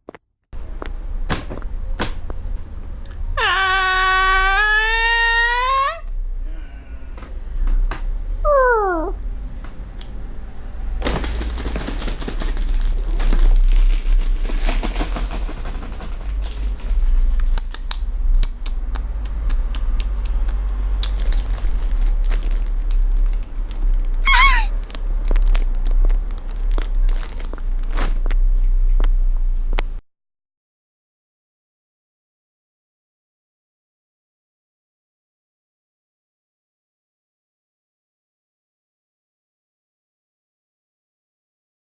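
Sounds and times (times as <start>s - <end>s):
crinkling crackling rustle: 11.0s - 17.6s, 21.0s - 28.5s
high wavering call: 24.2s - 24.7s.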